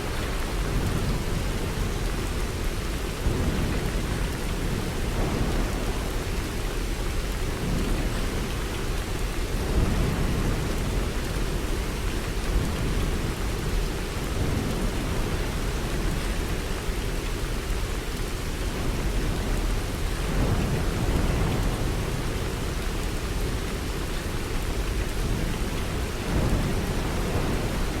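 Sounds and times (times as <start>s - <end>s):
heavy rain: 0.0s - 28.0s
low thunder rumble: 18.7s - 28.0s.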